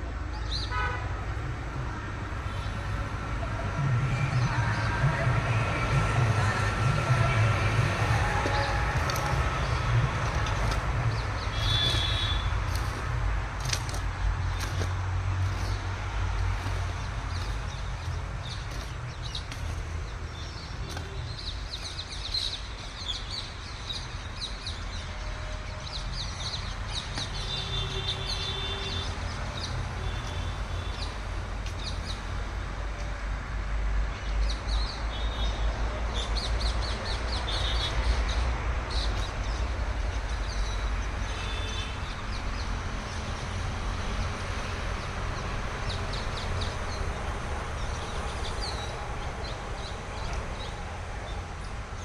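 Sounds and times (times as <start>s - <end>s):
small birds chirping: 8.0s - 25.0s.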